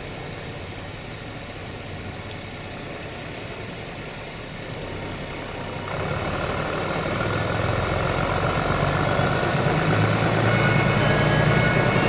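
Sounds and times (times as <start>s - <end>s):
train approaching: 0.0s - 12.0s
high-pitched whining tones: 9.0s - 12.0s.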